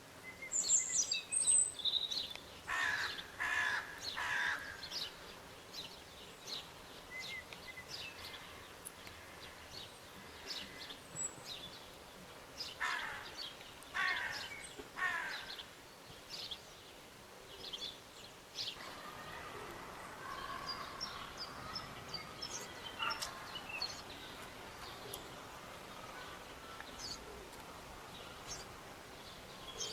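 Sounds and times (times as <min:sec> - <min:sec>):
birds chirping: 0:00.4 - 0:29.9
birds twittering: 0:17.5 - 0:29.9.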